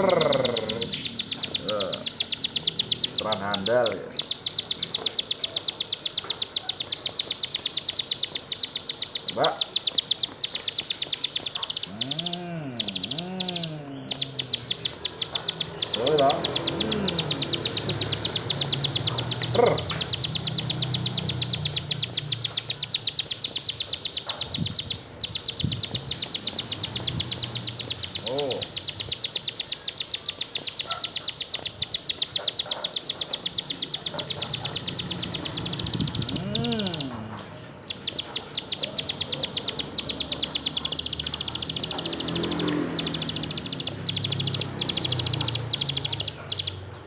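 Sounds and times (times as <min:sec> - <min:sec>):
bird song of high ticking notes: 0:00.0 - 0:47.0
short lower bird calls: 0:00.0 - 0:47.0.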